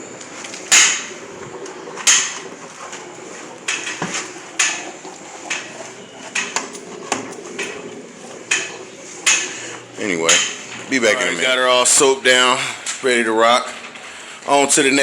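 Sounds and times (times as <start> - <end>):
foam brush scrubbing car: 0.0 - 11.6.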